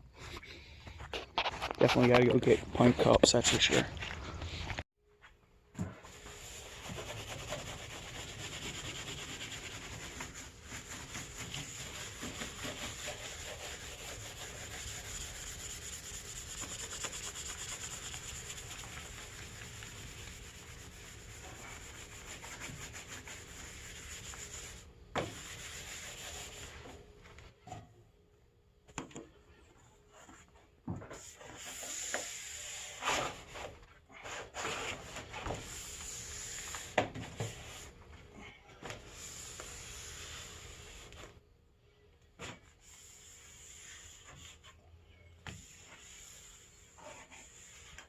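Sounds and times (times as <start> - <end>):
abrasive rubbing on a sign: 6.2 - 26.9, 45.5 - 48.0.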